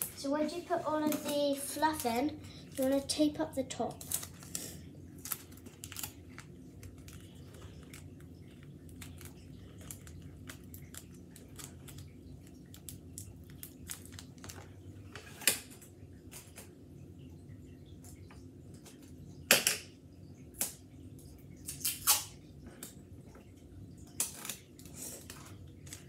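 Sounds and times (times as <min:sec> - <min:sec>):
paper crinkling: 0:03.9 - 0:15.5.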